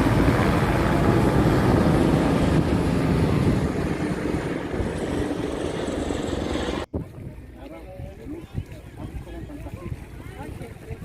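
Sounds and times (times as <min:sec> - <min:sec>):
helicopter rotor rumble: 0:00.0 - 0:06.9
wind buffeting microphone: 0:00.0 - 0:11.0.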